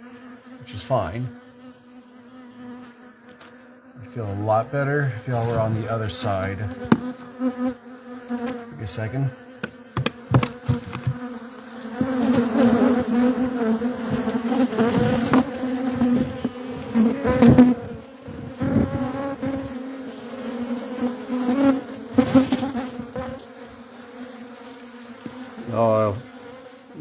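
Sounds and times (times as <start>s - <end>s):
honeybee colony buzzing: 0.0s - 27.0s
handling thumps and rustles: 6.4s - 7.3s, 9.6s - 11.3s, 14.0s - 17.7s.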